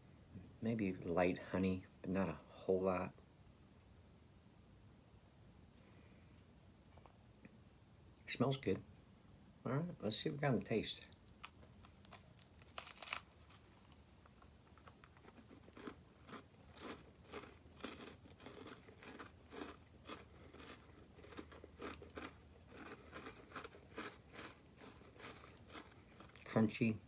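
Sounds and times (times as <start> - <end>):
chewing crunching: 11.0 - 26.6
biting crunchy biscuit: 11.0 - 26.7.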